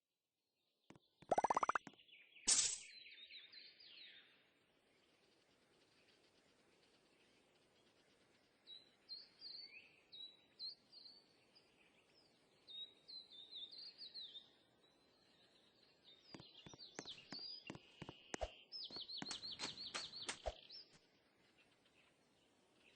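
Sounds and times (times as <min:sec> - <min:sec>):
songbirds chirping and singing: 0:09.2 - 0:22.9.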